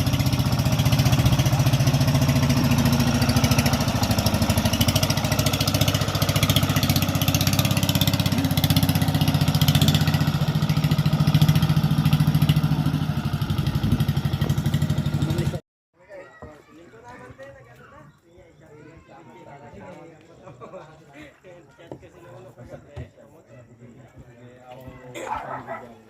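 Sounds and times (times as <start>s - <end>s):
engine idling: 0.0s - 15.6s.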